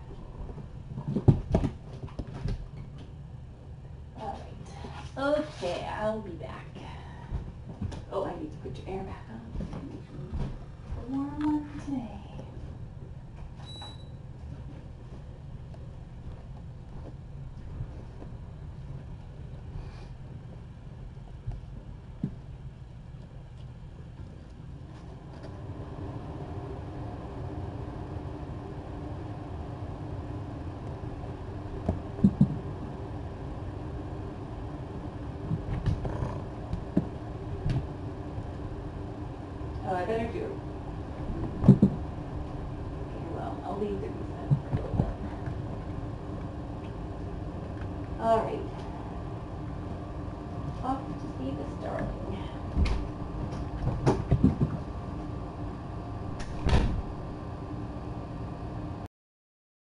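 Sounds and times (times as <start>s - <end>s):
air conditioner humming: 0.0s - 59.1s
knocks and bumps: 31.8s - 32.6s, 41.3s - 42.1s, 52.7s - 54.9s.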